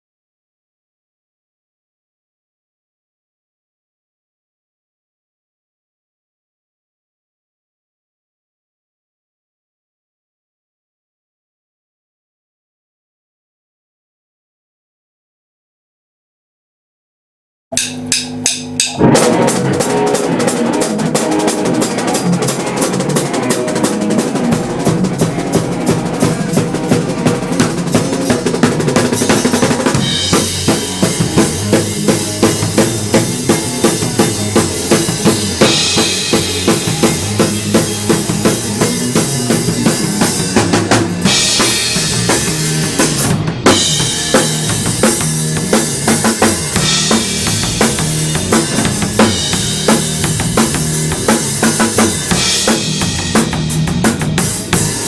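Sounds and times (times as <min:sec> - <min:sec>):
sharp drum hits: 0:17.7 - 0:55.0
band playing: 0:17.8 - 0:55.0.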